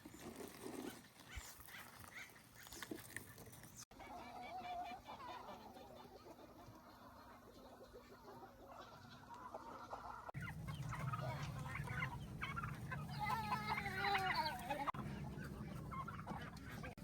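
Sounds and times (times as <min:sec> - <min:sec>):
faint poultry calls: 0:03.9 - 0:17.0.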